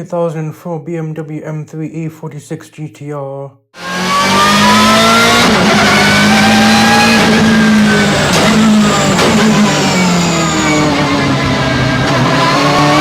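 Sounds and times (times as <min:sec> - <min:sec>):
race car engine at full throttle: 0:03.8 - 0:13.0.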